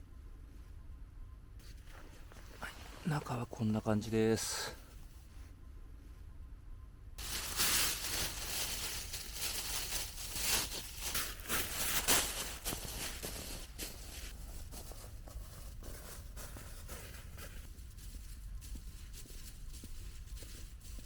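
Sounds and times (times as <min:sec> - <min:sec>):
crunching and rustling in snow: 0:07.2 - 0:21.0.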